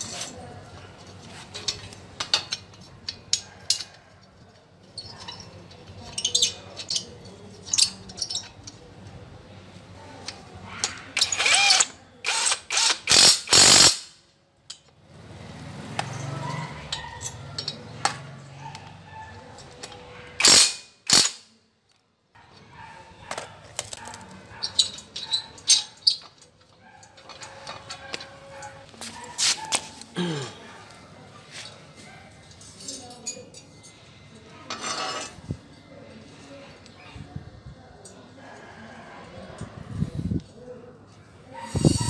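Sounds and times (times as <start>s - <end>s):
cordless impact wrench running: 11.2s - 14.1s.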